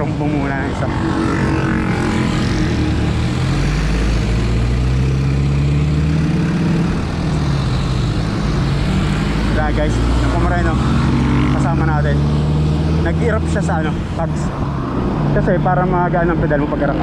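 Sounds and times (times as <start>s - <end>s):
motor vehicle engine passing: 0.0s - 17.0s.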